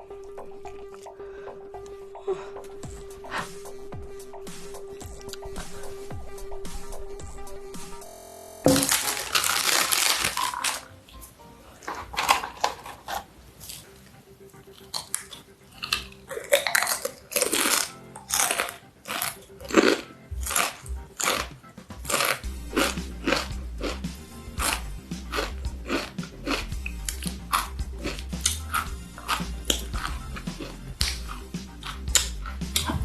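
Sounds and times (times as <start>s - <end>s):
music with low bass: 0.0s - 9.0s, 22.4s - 33.0s
crunching tortilla chip: 8.7s - 11.2s, 14.6s - 33.0s.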